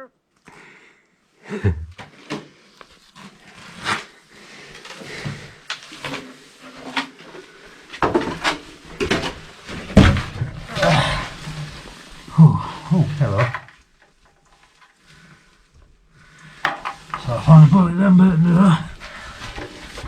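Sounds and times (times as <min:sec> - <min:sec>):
knocks and clatters inside metal fuselage: 0:08.1 - 0:11.5.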